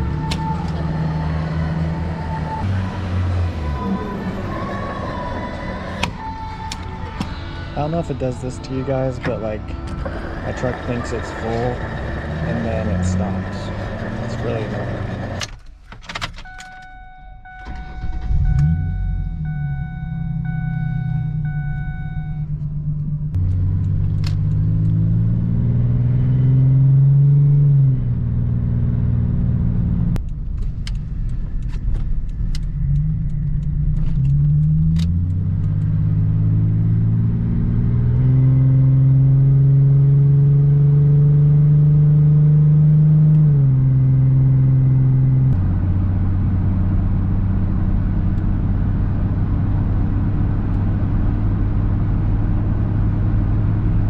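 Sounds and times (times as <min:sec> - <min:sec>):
pickup truck engine accelerating: 0:00.0 - 0:15.4, 0:17.8 - 0:54.0
sharp clicks: 0:30.2 - 0:35.9.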